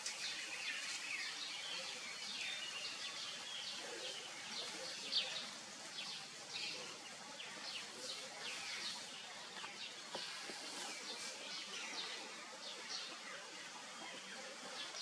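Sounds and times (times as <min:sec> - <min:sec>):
small birds chirping: 0:00.0 - 0:15.0
steady outdoor hiss: 0:00.0 - 0:15.0.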